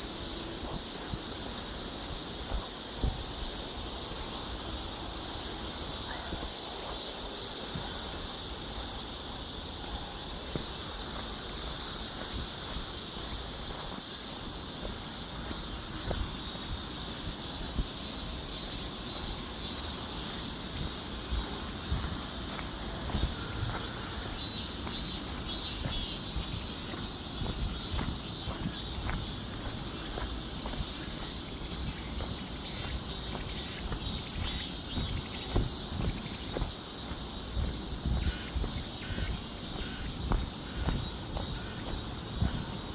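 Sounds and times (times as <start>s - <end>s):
insects chirring: 0.0s - 42.9s.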